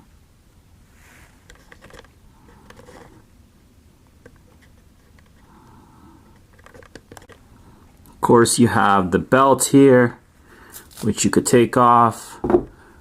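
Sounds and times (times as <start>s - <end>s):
plastic toy handling rustles: 1.0s - 3.2s, 6.4s - 7.4s, 10.7s - 11.2s.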